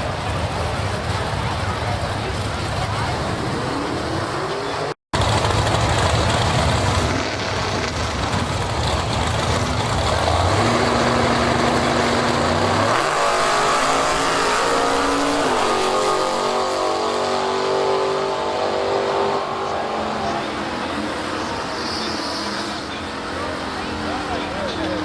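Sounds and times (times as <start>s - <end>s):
drag racing car engine: 0.0s - 25.0s.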